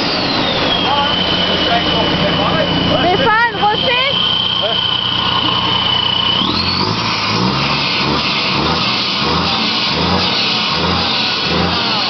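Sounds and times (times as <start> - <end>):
diesel engine revving in blips: 0.0 - 12.0.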